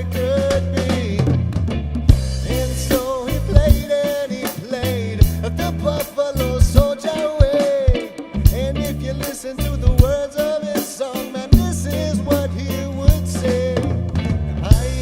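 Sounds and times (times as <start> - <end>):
live band playing reggae: 0.0 - 15.0.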